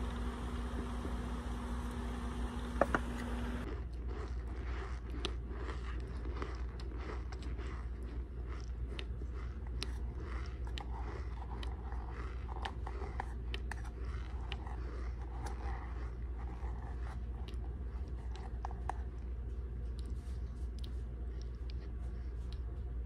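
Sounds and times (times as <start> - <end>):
low hum: 0.0 - 3.7
crunchy chewing: 0.0 - 22.9.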